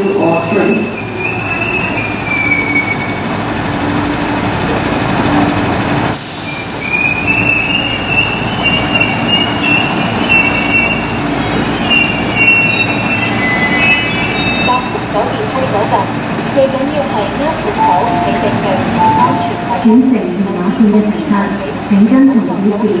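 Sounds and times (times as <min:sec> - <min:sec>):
train wheels squealing: 0:00.0 - 0:03.3, 0:06.4 - 0:15.4
train hum: 0:00.0 - 0:23.0.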